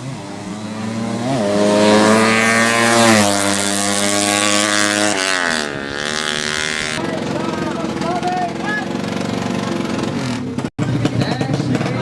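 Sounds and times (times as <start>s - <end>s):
motorcycle engine revving hard: 0.0s - 12.0s.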